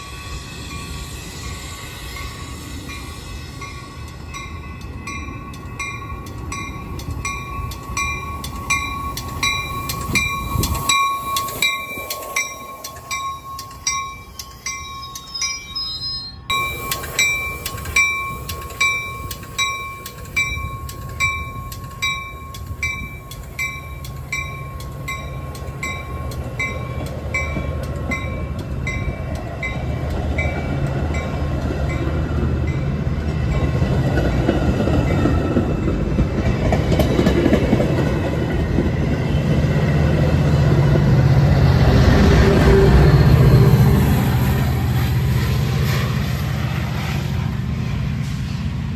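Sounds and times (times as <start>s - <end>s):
crossing bell ringing: 0.0s - 36.0s
train rumble: 0.0s - 48.9s.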